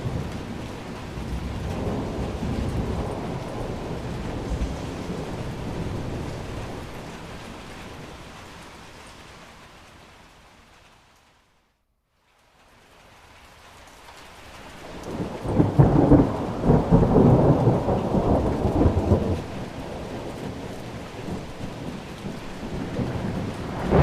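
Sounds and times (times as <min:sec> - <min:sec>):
rolling thunder: 0:00.0 - 0:08.9, 0:14.8 - 0:24.0
steady rain: 0:00.0 - 0:24.0.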